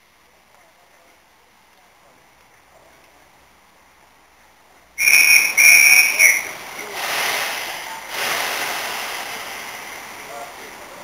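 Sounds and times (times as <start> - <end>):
steam locomotive whistle blasts: 5.0 - 6.5
hiss of escaping steam: 5.0 - 10.2.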